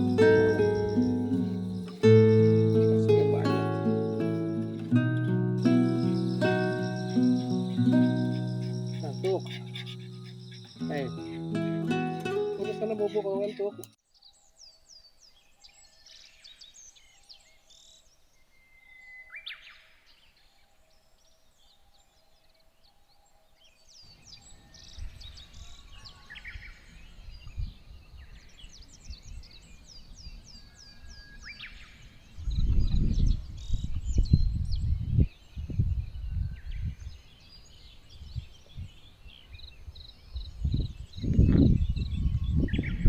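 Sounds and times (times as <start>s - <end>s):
birds chirping: 0.0s - 15.9s
wind buffeting microphone: 32.1s - 43.0s.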